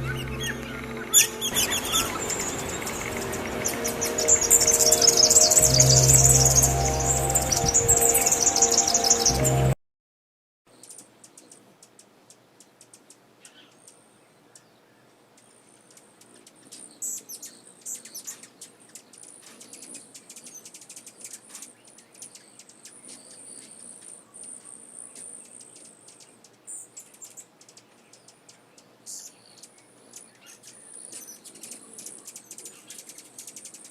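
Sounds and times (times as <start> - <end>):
small birds chirping: 0.0 - 9.7, 10.7 - 33.9
steady high-pitched shrill: 0.0 - 9.8.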